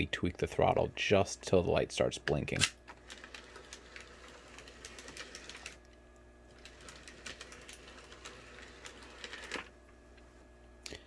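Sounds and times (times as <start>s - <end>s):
model train wheels clicking: 3.1s - 5.8s.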